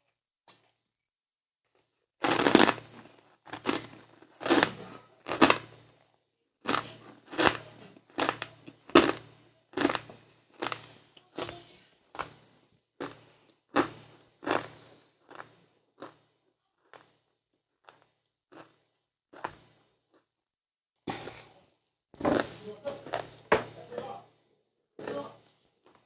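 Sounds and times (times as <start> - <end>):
chewing crunchy snacks: 2.2 - 6.0, 6.6 - 20.3.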